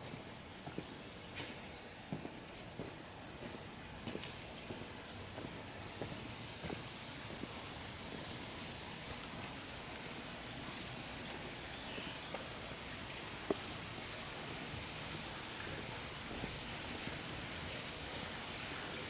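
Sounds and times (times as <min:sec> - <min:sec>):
footsteps: 0:14.6 - 0:17.6.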